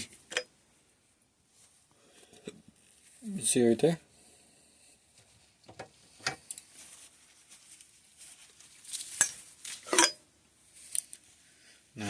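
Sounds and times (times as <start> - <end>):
metal parts clinking: 9.2 - 10.2.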